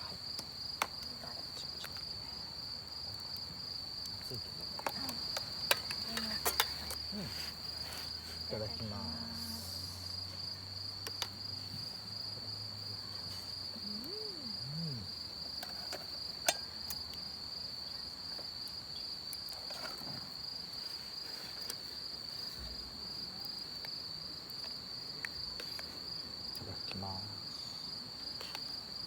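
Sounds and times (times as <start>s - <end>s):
high insect trill: 0.0s - 29.0s.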